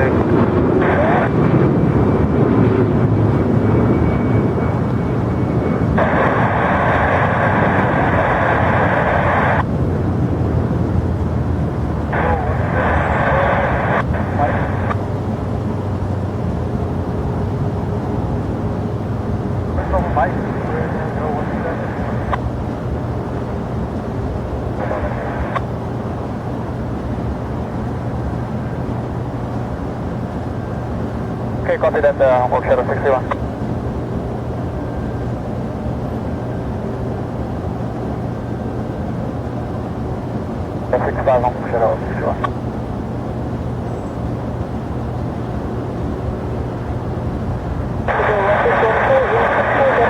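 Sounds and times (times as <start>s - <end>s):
jet engines rumbling: 0.0s - 50.0s
radio static burst: 0.8s - 1.3s, 6.0s - 9.6s, 12.1s - 15.0s, 19.8s - 22.4s, 24.8s - 25.7s, 31.7s - 33.4s, 40.9s - 42.5s, 48.1s - 50.0s
radio hiss ending in click: 41.0s - 42.6s.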